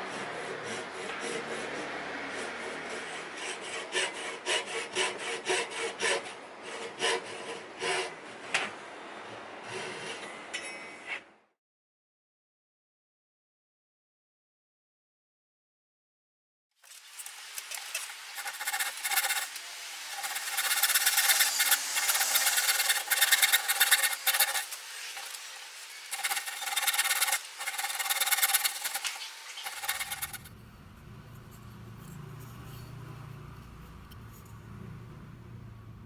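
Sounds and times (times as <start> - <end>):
hand sanding wood: 17.9 - 30.5.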